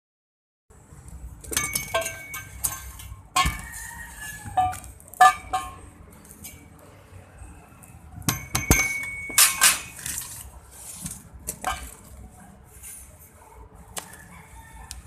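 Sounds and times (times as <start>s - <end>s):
metal clanking on metal: 1.4s - 3.8s, 8.2s - 10.3s.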